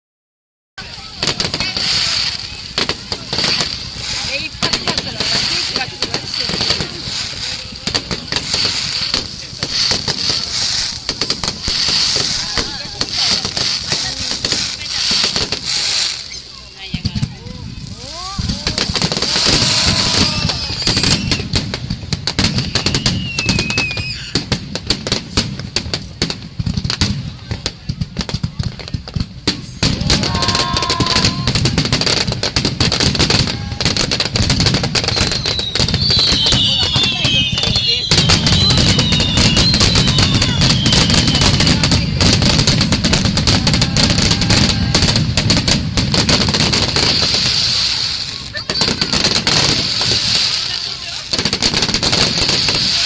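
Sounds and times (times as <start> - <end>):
steady high hiss: 0.8 - 26.5
firework whistling: 0.8 - 53.0
fireworks bangs and crackling: 0.8 - 53.0.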